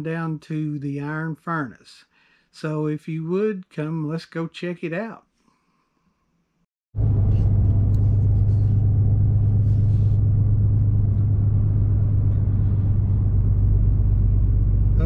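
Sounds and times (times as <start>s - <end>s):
car engine and road rumble: 7.0s - 15.0s.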